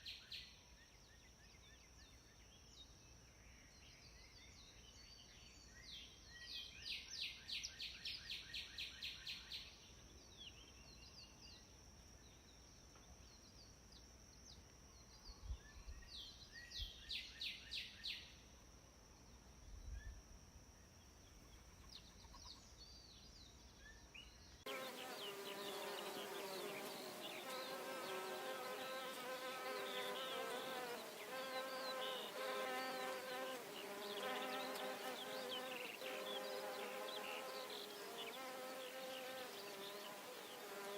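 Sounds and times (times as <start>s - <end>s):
high insect whine: 0.0s - 40.9s
chirps: 21.4s - 40.9s
dense insect buzzing: 24.6s - 40.9s.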